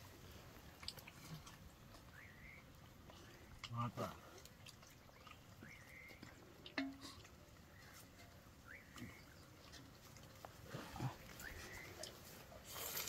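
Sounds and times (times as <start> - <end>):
faint bird chirps: 2.0 - 2.8, 5.5 - 6.4, 7.6 - 9.7.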